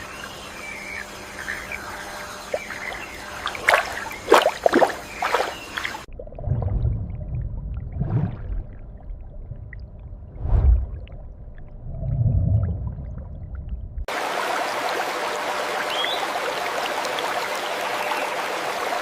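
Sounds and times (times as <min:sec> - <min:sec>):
water splashing and gurgling: 0:00.0 - 0:17.9
muffled low gurgle: 0:02.5 - 0:14.1.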